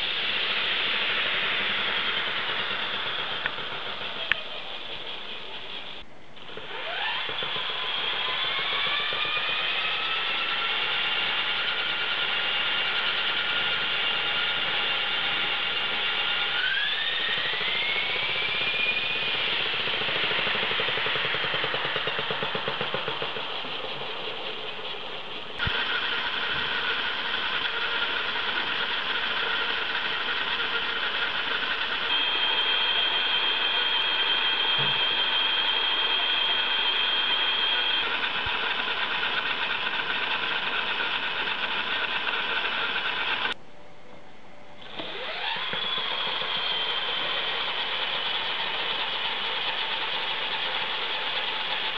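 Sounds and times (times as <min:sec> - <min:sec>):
rc helicopter motor whine: 0:00.0 - 0:43.6, 0:44.8 - 0:51.9.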